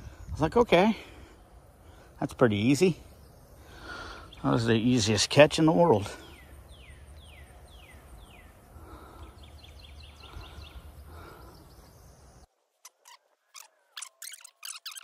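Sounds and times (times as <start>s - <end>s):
outdoor ambience: 0.0s - 15.0s
bird whistling and chirping: 13.1s - 15.0s.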